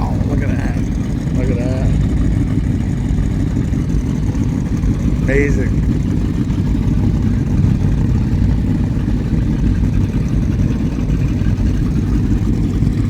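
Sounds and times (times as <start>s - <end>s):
powerboat engines idling: 0.0s - 13.0s.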